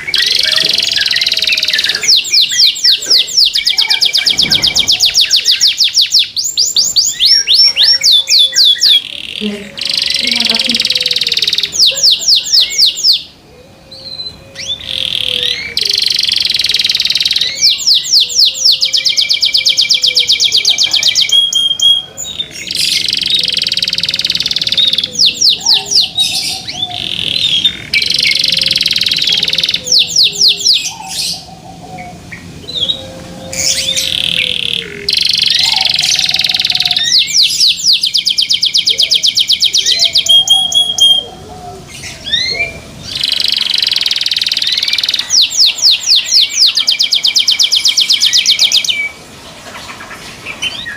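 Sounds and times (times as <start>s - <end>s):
canary singing: 0.0s - 50.9s.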